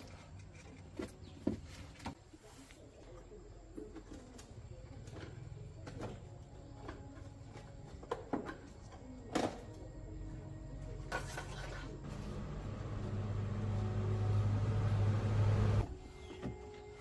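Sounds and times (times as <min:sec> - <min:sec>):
machine hum: 0:12.0 - 0:15.9.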